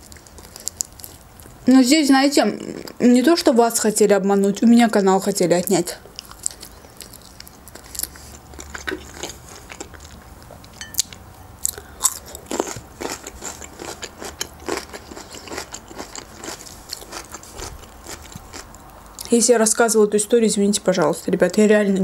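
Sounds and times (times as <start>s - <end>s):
person chewing food: 0.0s - 1.6s, 6.0s - 19.3s.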